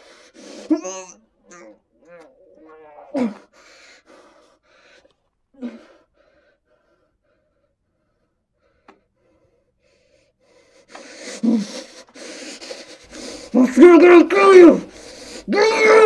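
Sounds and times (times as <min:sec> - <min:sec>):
man sobbing through gag: 0:00.5 - 0:03.5, 0:15.4 - 0:16.0.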